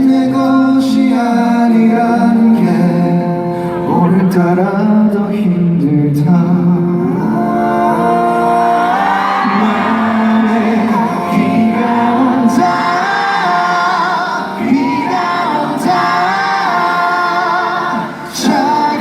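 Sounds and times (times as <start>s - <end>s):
person singing long held notes: 6.8s - 19.0s
instrumental accompaniment: 7.0s - 19.0s.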